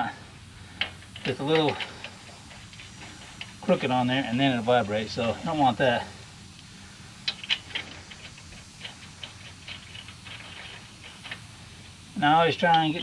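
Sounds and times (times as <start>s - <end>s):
lug nuts clicking: 7.2s - 11.5s.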